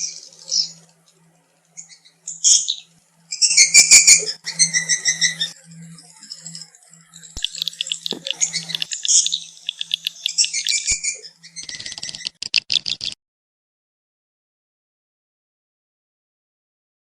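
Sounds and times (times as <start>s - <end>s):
low steady hum: 7.0s - 11.3s
swiftlet chirping and twittering: 7.4s - 13.2s.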